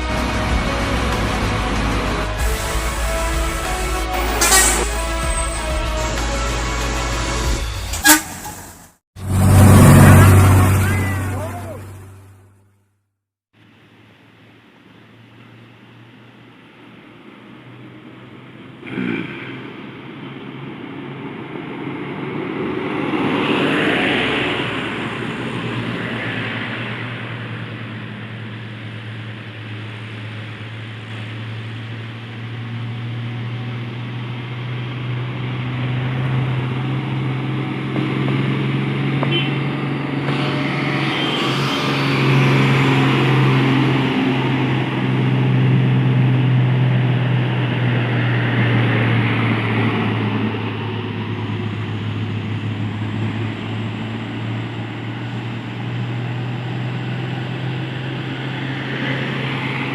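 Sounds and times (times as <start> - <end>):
truck diesel engine drone: 0.0 - 13.0, 13.6 - 59.9
passing traffic: 0.0 - 59.9.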